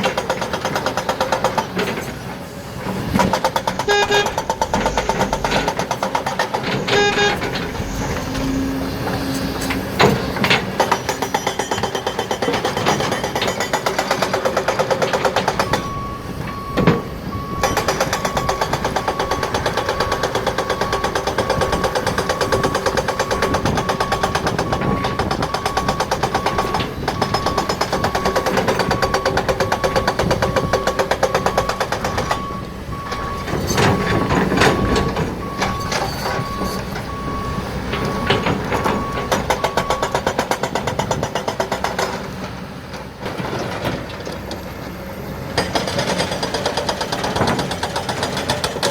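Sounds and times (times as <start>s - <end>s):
heavy machinery rattling: 0.0s - 48.9s
reversing alarm beeping: 3.3s - 11.8s, 14.7s - 41.2s.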